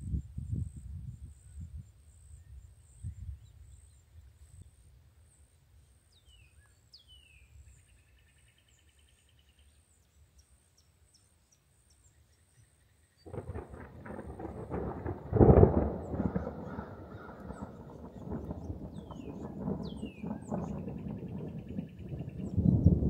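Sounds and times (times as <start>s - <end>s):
bird chirps: 6.1s - 23.0s
loud crackling noise: 13.3s - 23.0s.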